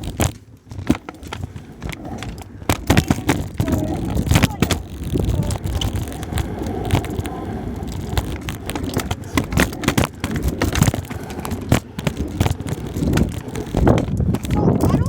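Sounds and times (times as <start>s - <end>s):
scooter wheels rolling on wet ground: 0.0s - 15.0s.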